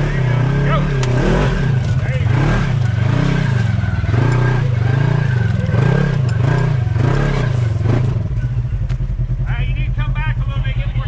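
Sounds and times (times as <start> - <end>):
engine revving in throttle pulses: 0.0 - 8.5.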